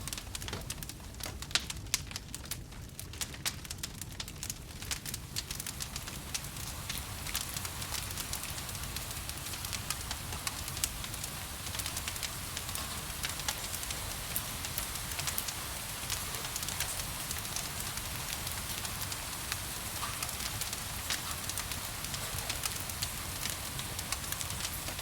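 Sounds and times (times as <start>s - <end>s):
wood fire crackling and popping: 0.0s - 25.0s
rain hissing: 5.0s - 25.0s.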